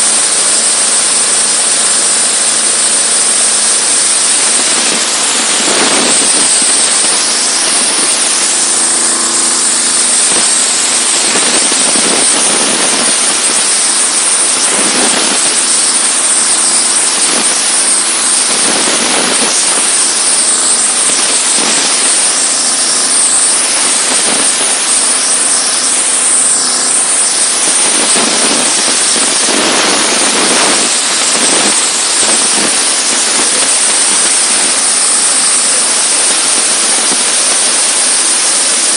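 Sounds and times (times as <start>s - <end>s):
diesel engine drone: 0.0s - 38.9s
pressure washer jet hissing: 0.0s - 38.9s.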